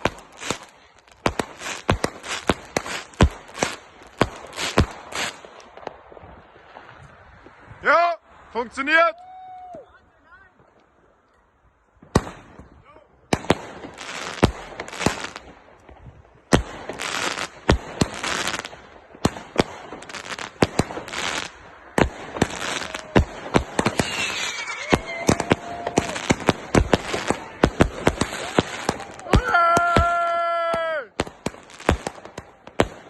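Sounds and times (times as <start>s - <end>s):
fireworks whistling: 0.0s - 7.6s, 16.5s - 33.0s
fireworks bangs: 0.0s - 7.9s, 11.9s - 33.0s
fireworks crackle and hiss: 0.0s - 33.0s.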